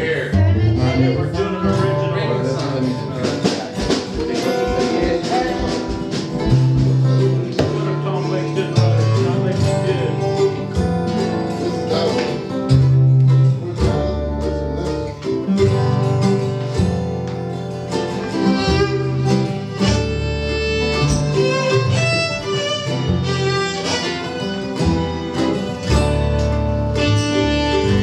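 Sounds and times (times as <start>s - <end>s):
acoustic string band playing: 0.0s - 28.0s
fiddle: 0.0s - 28.0s.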